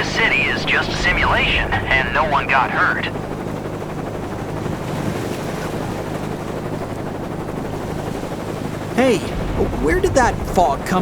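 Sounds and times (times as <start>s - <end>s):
surf rushing: 0.0s - 3.1s, 7.7s - 11.0s
wind: 0.0s - 11.0s.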